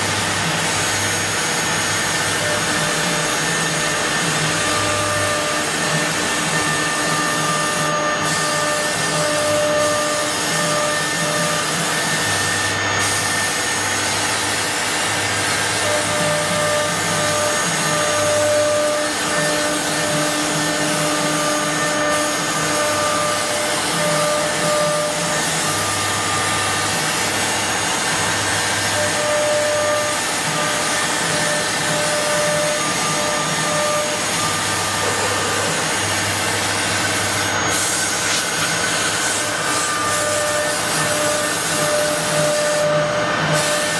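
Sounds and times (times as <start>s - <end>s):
wood router whining: 0.0s - 43.9s
pitched machine tone: 1.8s - 11.9s, 28.8s - 43.9s.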